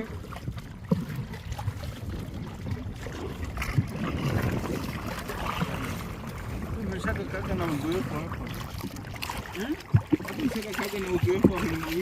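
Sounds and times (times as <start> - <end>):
water sloshing around a boat: 0.0 - 12.0
wind rumbling on microphone: 0.0 - 12.0.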